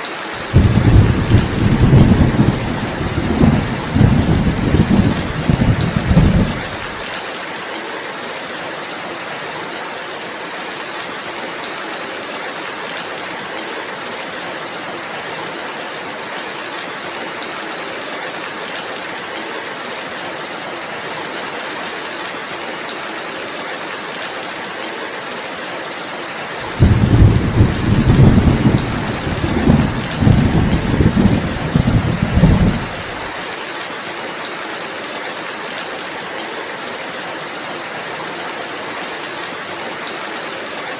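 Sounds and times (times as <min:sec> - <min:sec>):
steady rainfall: 0:00.0 - 0:40.9
thunder rumbling: 0:00.4 - 0:07.0, 0:26.7 - 0:33.4.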